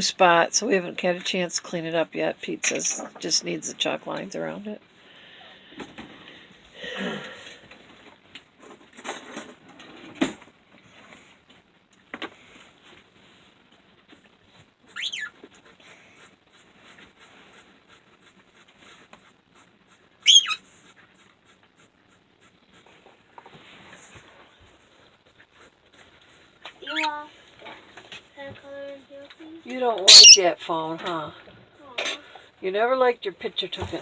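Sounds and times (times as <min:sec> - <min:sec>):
bird whistled calls: 0:15.0 - 0:15.3, 0:20.2 - 0:20.6, 0:30.1 - 0:30.4.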